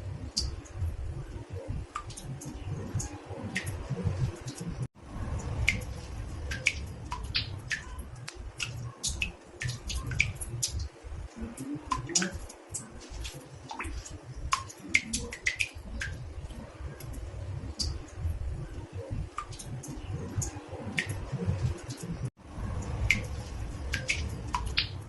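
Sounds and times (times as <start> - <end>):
water drops plinking into bathtub: 5.6 - 16.2, 22.8 - 25.0.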